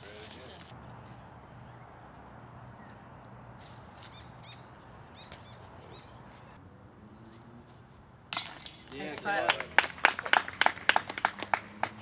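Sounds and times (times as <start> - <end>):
small bird chirping: 2.6 - 6.4.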